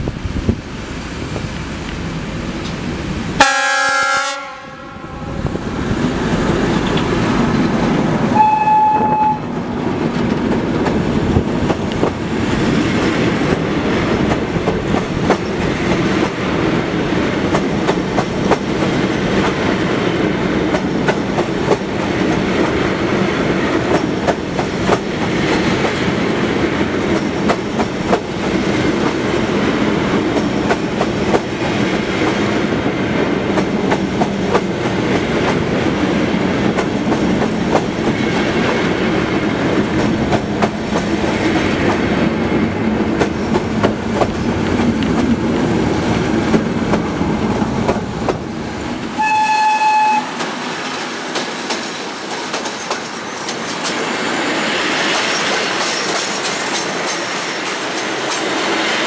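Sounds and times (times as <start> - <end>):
train rolling past: 0.0 - 59.0
locomotive horn blast: 3.4 - 5.4, 8.3 - 9.6, 49.2 - 50.4
brief high tone: 8.4 - 9.5.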